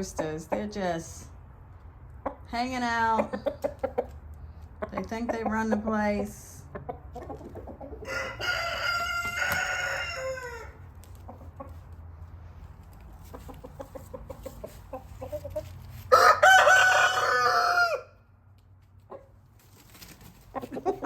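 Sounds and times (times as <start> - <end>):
chicken clucking: 2.1 - 12.0, 13.0 - 17.6, 19.0 - 21.0
rooster crowing: 8.0 - 10.8, 16.1 - 18.2.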